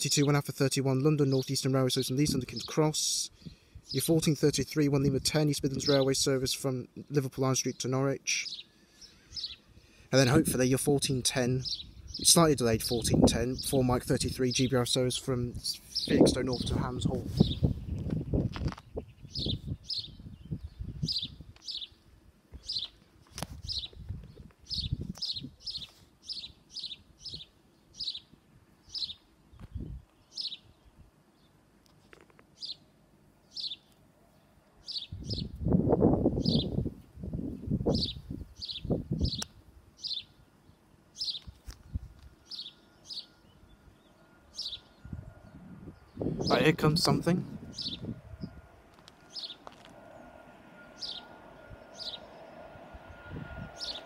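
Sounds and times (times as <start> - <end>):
small bird chirping: 17.4 - 22.0, 23.6 - 30.8, 41.2 - 45.1, 49.3 - 49.7.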